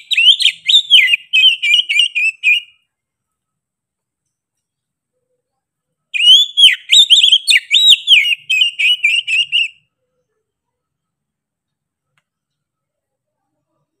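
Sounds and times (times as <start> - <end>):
bird singing whistled notes: 0.0 - 2.9, 6.1 - 9.9.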